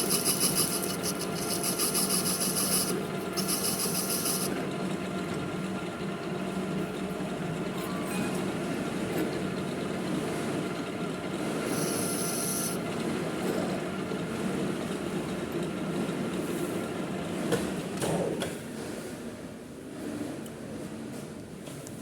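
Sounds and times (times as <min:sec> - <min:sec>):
metal lathe humming: 0:00.0 - 0:15.6.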